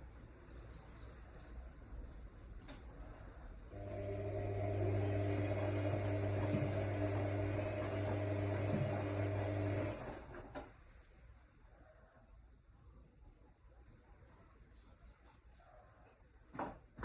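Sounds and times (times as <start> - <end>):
washing machine motor hum: 3.0 - 10.8.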